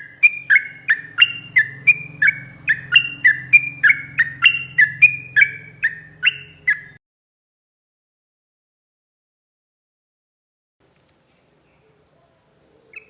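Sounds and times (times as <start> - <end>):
bird singing sharp notes: 0.0 - 7.0
faint low hum: 0.0 - 7.0, 10.8 - 13.0.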